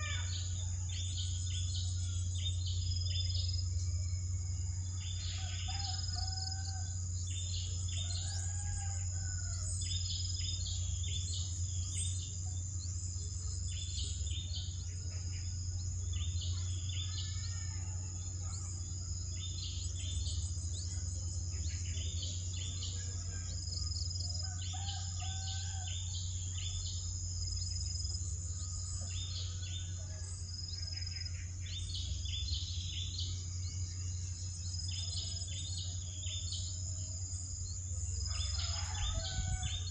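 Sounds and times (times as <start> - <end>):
birds calling: 0.0 - 3.3
insect drone: 0.0 - 39.9
low steady hum: 0.0 - 39.9.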